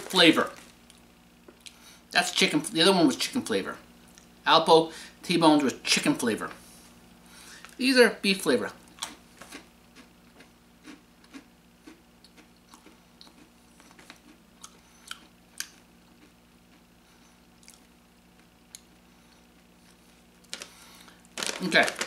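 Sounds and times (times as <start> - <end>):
low steady hum: 0.0 - 22.0
person chewing crunchy treats: 9.0 - 17.9, 19.9 - 22.0.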